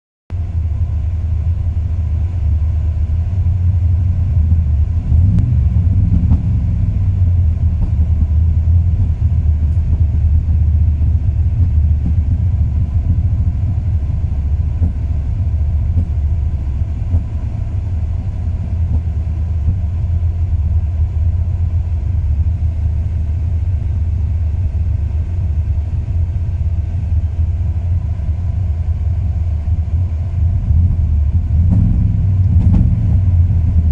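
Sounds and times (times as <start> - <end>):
truck engine idling roughly: 0.4 - 33.9.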